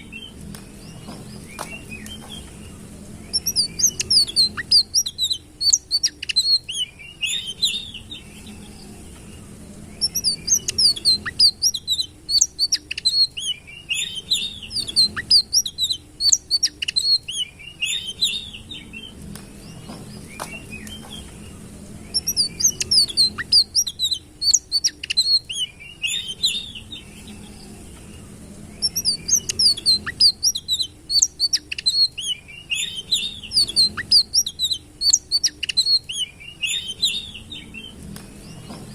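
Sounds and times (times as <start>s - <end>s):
faint low hum: 0.0s - 38.9s
songbird twittering: 0.0s - 38.9s.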